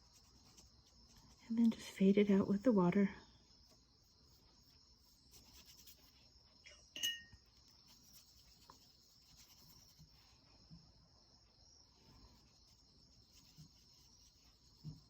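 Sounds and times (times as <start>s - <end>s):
light clink with ring: 6.6s - 7.4s.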